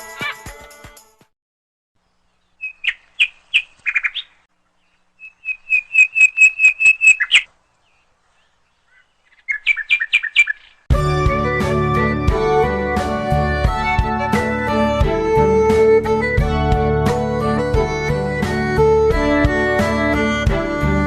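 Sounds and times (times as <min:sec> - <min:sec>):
small songbird chirping: 0:02.0 - 0:10.9
string music: 0:10.9 - 0:21.0.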